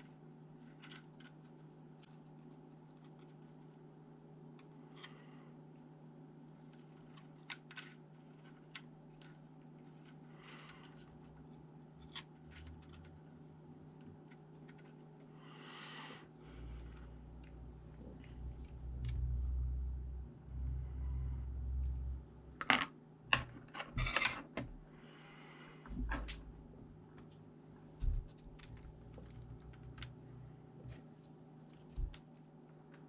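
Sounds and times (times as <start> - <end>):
steady low hum: 0.0 - 33.0
low rumble: 16.7 - 22.6.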